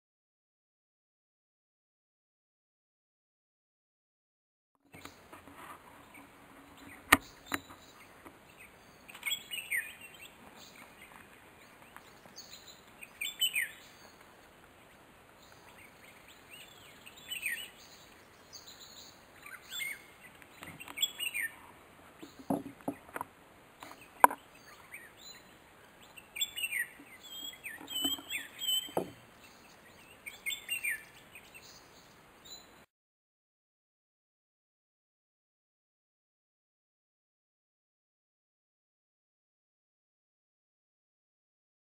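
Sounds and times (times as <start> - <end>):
birds chirping: 4.9 - 32.9.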